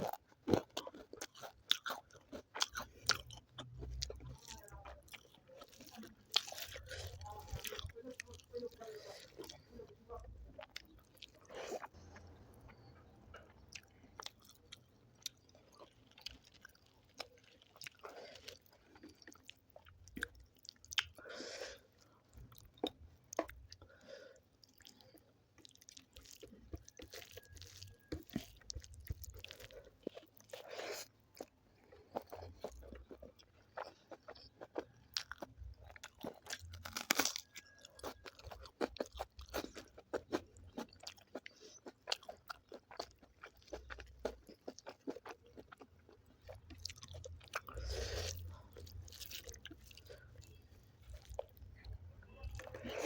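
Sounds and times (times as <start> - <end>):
close chewing with mouth smacks: 0.0 - 53.0
crunchy bites: 25.8 - 50.1.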